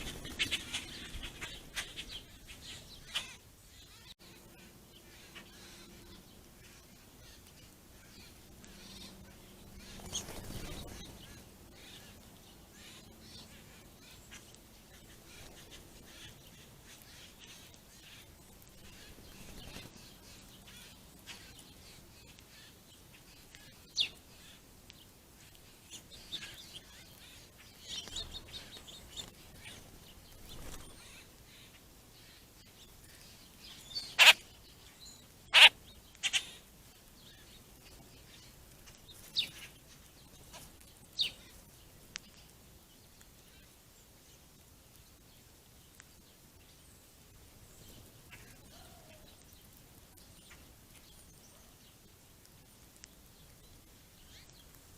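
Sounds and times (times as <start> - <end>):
loud sharp bird calls: 0.0 - 24.6, 25.4 - 36.7
birds chirping: 0.0 - 54.9.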